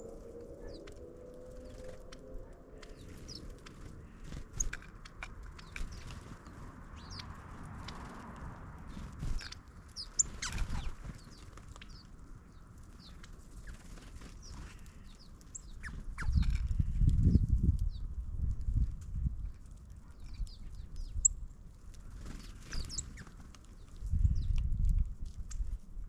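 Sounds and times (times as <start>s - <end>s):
low rumble: 0.0s - 9.4s
small birds chirping: 0.0s - 18.8s, 19.4s - 24.8s.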